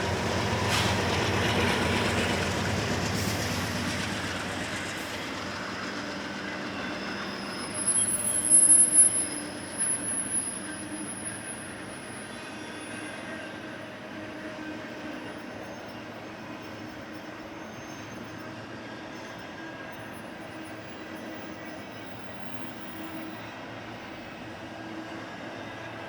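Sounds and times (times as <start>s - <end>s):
freight train cars rolling past: 0.0s - 26.0s
high-pitched wheel squeal: 6.8s - 11.4s.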